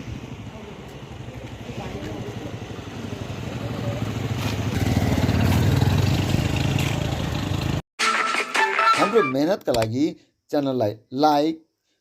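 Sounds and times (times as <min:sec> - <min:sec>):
vehicle engine approaching: 0:00.0 - 0:07.8.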